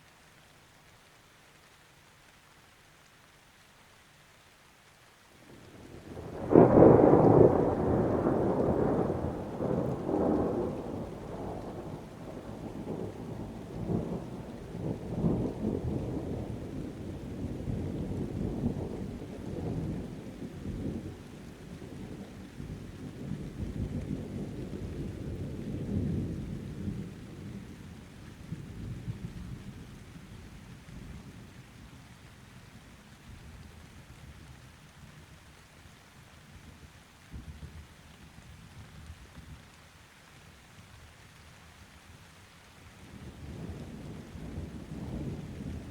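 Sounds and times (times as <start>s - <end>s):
rain pattering: 0.0s - 45.9s
thunder rumbling: 5.5s - 29.6s, 43.1s - 45.9s.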